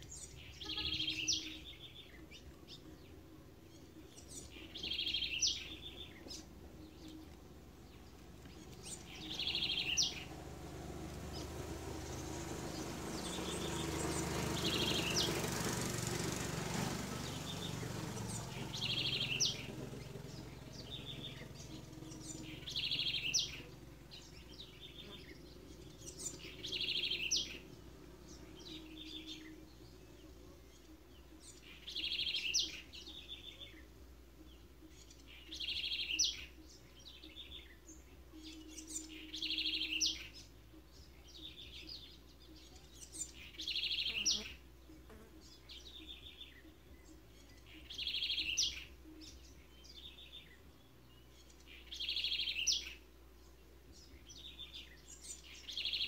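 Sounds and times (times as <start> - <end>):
songbird trilling: 0.0 - 15.9, 17.2 - 53.1, 54.0 - 56.0.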